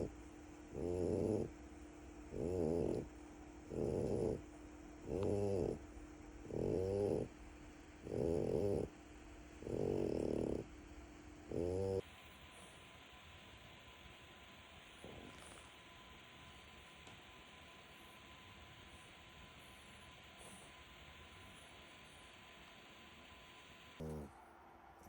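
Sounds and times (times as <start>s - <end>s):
puppy snoring: 0.7s - 1.6s, 2.3s - 7.4s, 8.0s - 9.0s, 9.6s - 10.8s, 11.4s - 12.9s, 14.8s - 16.0s, 23.9s - 24.4s.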